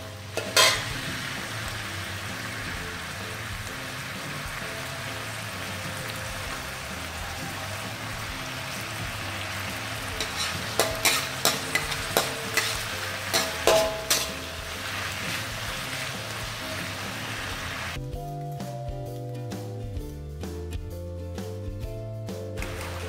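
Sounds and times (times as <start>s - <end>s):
spatula clanking against a wok: 0.0s - 1.3s, 9.8s - 14.8s
meat sizzling in a wok: 0.0s - 18.0s, 22.6s - 23.0s.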